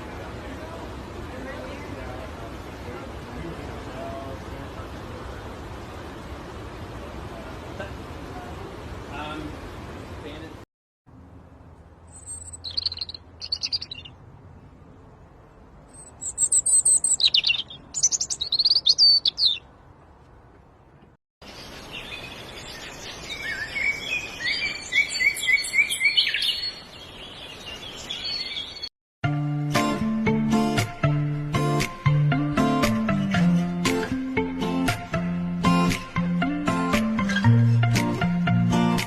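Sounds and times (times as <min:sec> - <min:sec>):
small birds chirping and trilling: 0:12.1 - 0:14.3, 0:15.9 - 0:19.7, 0:21.4 - 0:28.9.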